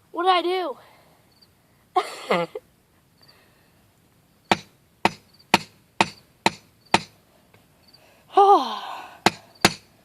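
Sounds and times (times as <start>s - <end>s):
hammer striking a smartphone: 4.5s - 7.2s, 9.3s - 9.9s.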